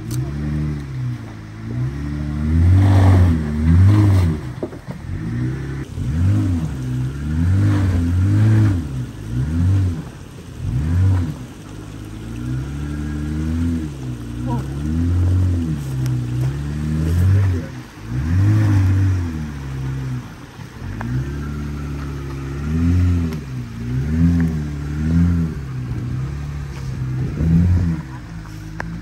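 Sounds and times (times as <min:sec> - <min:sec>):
engine revving in short bursts: 0:00.0 - 0:04.5.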